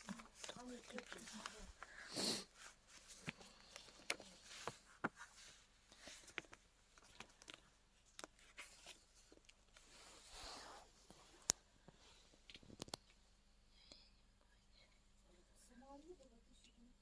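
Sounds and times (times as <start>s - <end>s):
light clicks of small objects handled: 11.1s - 13.2s.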